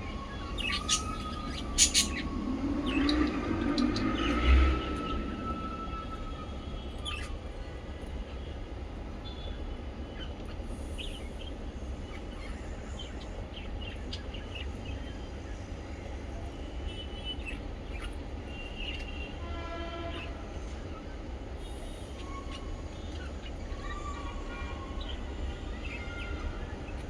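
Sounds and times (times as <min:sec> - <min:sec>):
birds chirping: 0:00.0 - 0:27.0
buzzy bird call: 0:00.4 - 0:02.4.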